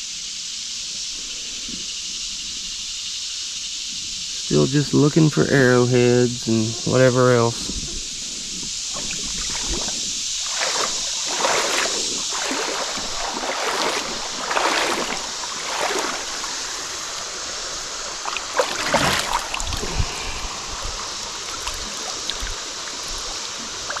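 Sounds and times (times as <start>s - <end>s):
creek water rushing: 4.5s - 24.0s
water splashes and swishes: 7.7s - 24.0s.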